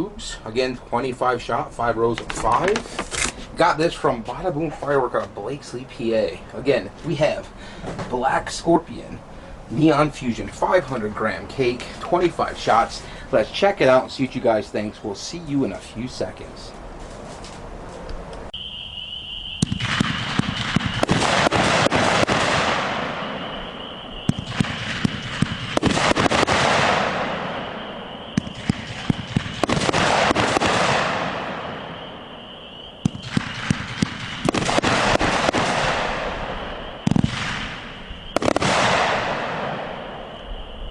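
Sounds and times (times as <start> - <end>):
firework volleys of sharp shots: 18.6 - 40.5
firework hiss and crackle: 18.6 - 40.9.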